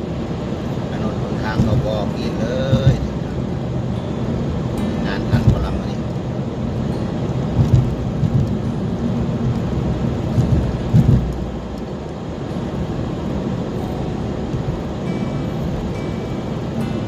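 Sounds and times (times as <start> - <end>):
car road and wind noise: 0.0 - 17.0
low thumps: 2.6 - 3.3, 5.3 - 5.9, 7.5 - 8.8, 9.4 - 11.9.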